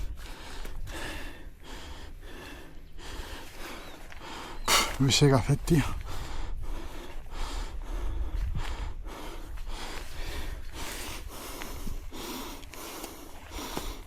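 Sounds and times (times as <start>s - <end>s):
wind rumble on microphone: 0.0s - 2.4s, 5.4s - 12.6s
person breathing hard: 0.0s - 5.0s, 5.9s - 14.0s.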